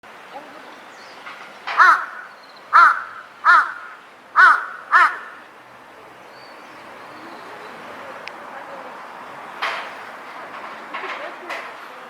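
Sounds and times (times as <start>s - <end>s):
crow cawing: 1.7s - 5.5s.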